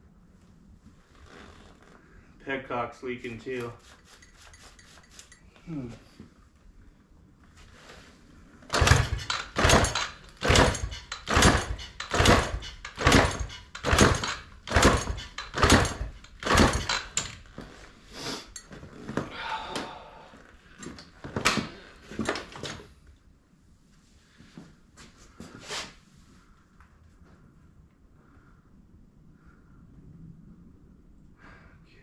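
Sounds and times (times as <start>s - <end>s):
motorcycle engine kick-starting: 8.6s - 17.7s.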